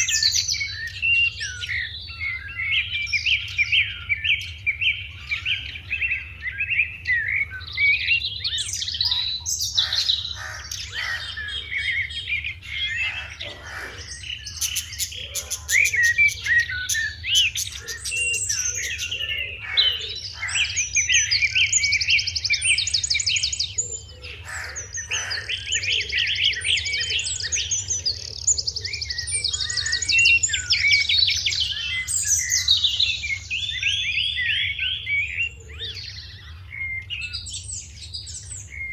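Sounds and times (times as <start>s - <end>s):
sparrows chirping: 0.0s - 38.9s.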